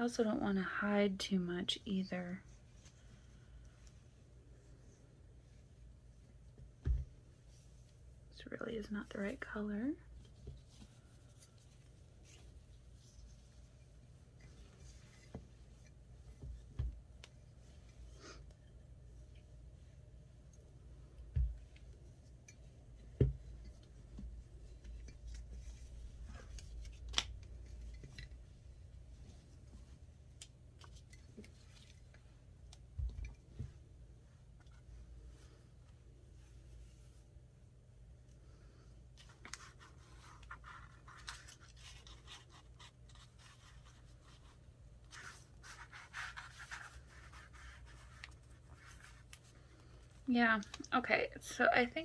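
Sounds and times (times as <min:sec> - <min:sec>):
low steady hum: 0:00.0 - 0:52.0
material rustling: 0:02.3 - 0:37.7, 0:39.0 - 0:50.8
fabric and paper rustling: 0:39.1 - 0:51.0.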